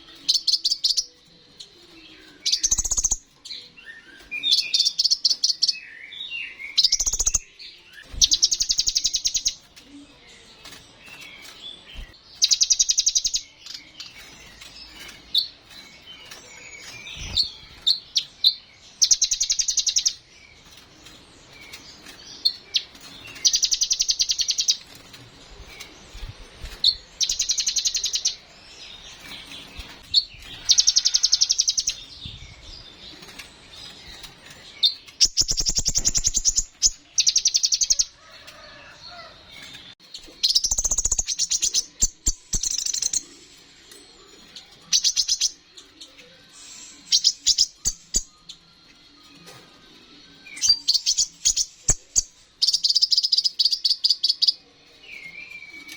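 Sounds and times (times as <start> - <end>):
soft bird twittering: 0.0 - 10.1, 21.6 - 39.3, 39.9 - 48.7.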